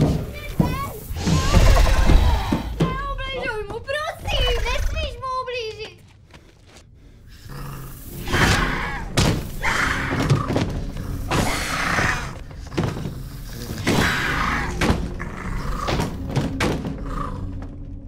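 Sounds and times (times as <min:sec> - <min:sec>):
rough hissing and rumbling: 0:00.2 - 0:02.8, 0:07.2 - 0:15.9.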